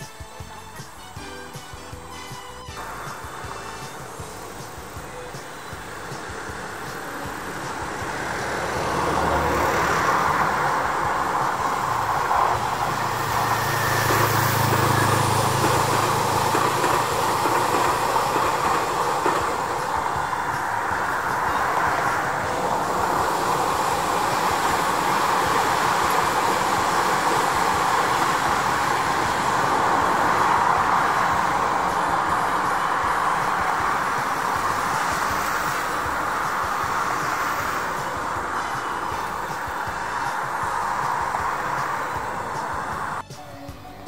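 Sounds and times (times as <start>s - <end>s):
train approaching: 0.0s - 44.0s
train wheels rumbling on rails: 0.0s - 44.0s.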